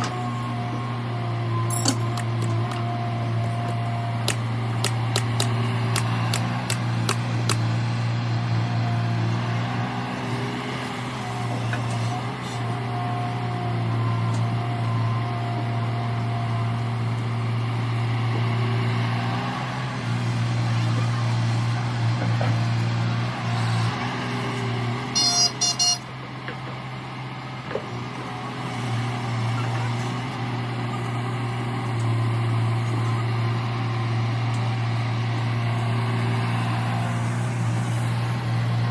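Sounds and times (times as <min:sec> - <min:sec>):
diesel engine running: 0:00.0 - 0:38.9
sharp metallic clicks: 0:03.4 - 0:07.7.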